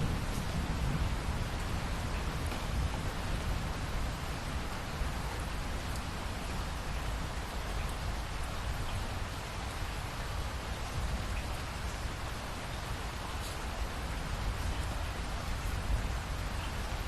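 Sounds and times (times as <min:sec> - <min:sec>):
raindrop ticks: 0:01.5 - 0:03.4, 0:05.3 - 0:10.0, 0:13.2 - 0:16.7.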